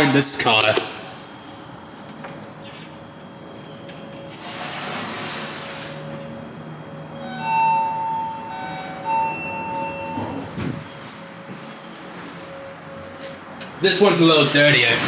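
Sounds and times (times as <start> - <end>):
elevator car rushing noise: 0.0 - 15.0
elevator signal tone: 6.8 - 11.6.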